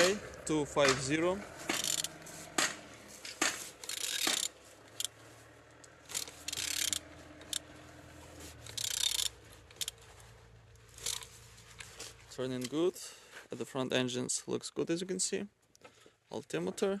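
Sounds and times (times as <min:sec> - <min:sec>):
ratchet wrench clicking: 0:01.7 - 0:02.2, 0:03.8 - 0:05.2, 0:05.8 - 0:07.7, 0:08.6 - 0:10.0, 0:10.9 - 0:11.3.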